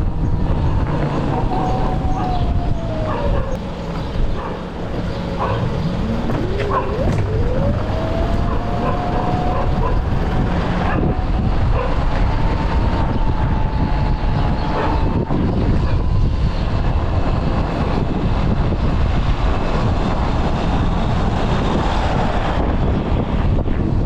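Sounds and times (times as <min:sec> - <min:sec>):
road and wind rumble: 0:00.0 - 0:24.0
electric bike motor whine: 0:01.3 - 0:19.3.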